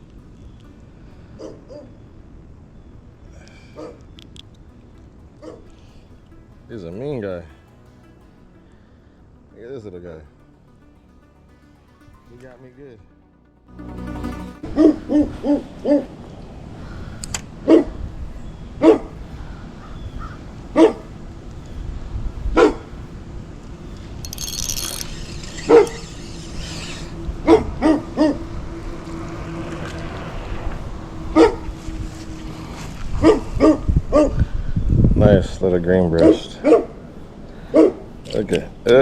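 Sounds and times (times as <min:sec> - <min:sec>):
dog barking: 0:18.8 - 0:19.1, 0:20.8 - 0:21.0, 0:22.6 - 0:22.8, 0:36.2 - 0:36.9, 0:37.7 - 0:38.0.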